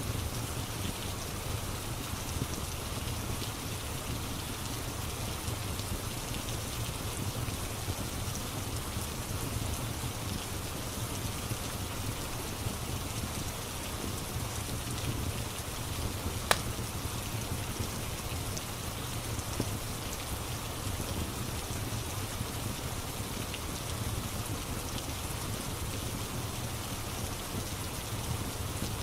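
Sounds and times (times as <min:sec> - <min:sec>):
steady rain: 0:00.0 - 0:29.0
fire crackling: 0:14.9 - 0:19.2.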